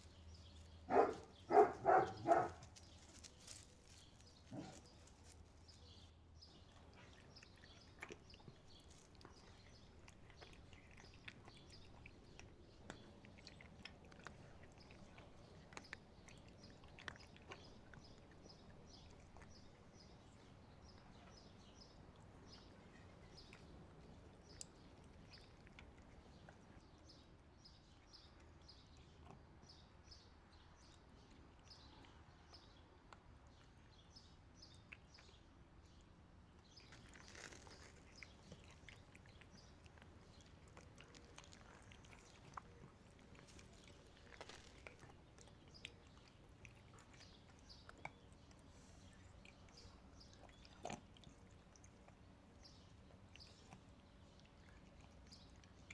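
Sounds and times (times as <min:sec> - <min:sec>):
small bird chirping: 0:00.0 - 0:32.7.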